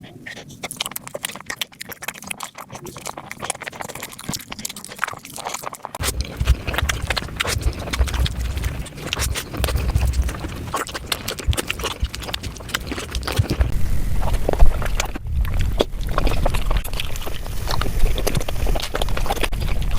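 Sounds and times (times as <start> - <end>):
chewing and mouth smacking: 0.0 - 19.9
low rumble: 6.0 - 19.9.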